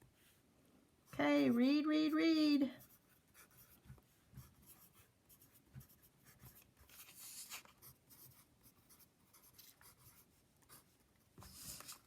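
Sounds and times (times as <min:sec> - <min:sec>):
faint scratching: 0:02.7 - 0:12.0.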